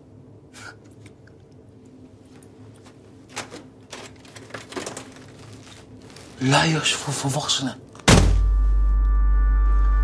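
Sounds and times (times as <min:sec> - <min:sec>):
faint clicks and rustles: 0:02.2 - 0:06.6.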